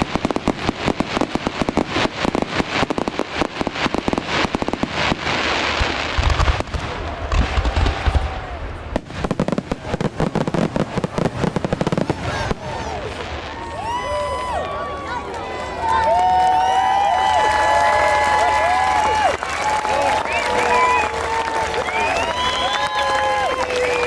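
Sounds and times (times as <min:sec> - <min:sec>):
deep firework booms: 0:00.0 - 0:13.5
fireworks crackling: 0:00.0 - 0:24.0.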